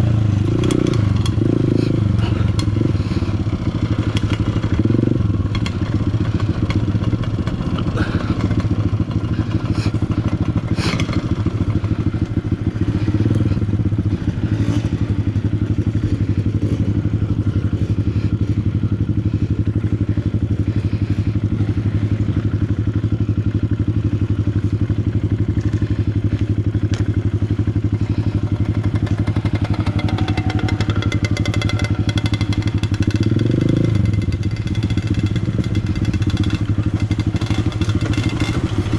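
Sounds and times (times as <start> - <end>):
motorcycle engine running: 0.0 - 38.9
motorcycle clattering over rough ground: 0.4 - 13.6, 28.2 - 38.9.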